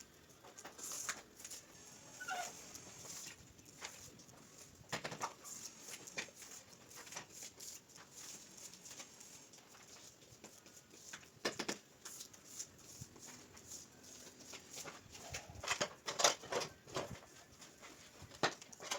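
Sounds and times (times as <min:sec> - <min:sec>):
knocks and scraping on tile: 0:10.4 - 0:12.2.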